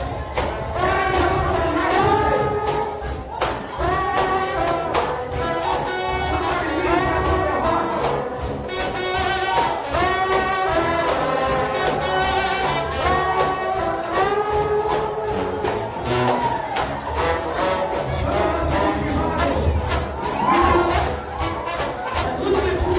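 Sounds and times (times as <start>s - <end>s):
tambourine beat: 0.0s - 22.9s
trombone band playing gospel: 0.0s - 22.9s.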